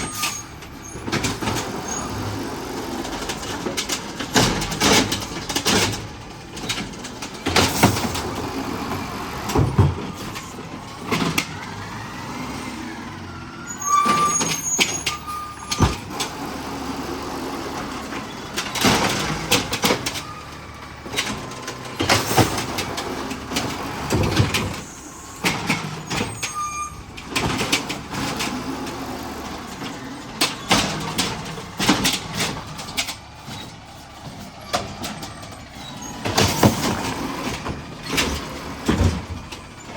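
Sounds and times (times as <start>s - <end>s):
garbage truck running: 0.0s - 39.9s
knocks and clanks: 2.8s - 11.8s, 17.8s - 39.9s.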